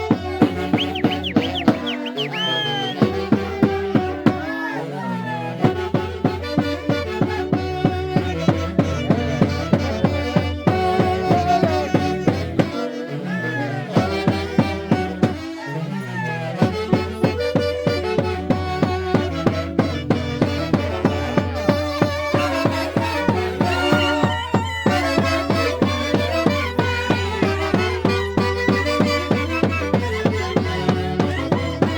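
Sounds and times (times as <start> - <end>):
violins playing melody: 0.0 - 31.9
steady beat: 0.4 - 4.3.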